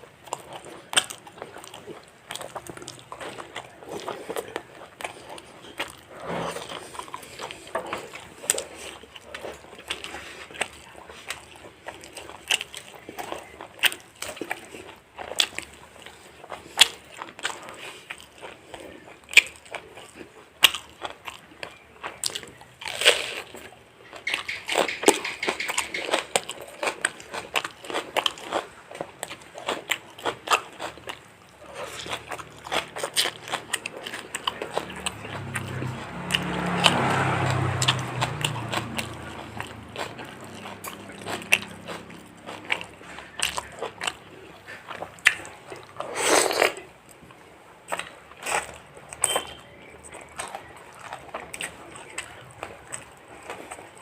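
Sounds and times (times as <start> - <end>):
wet chewing: 0.0 - 54.0
crunchy bites: 16.8 - 46.9.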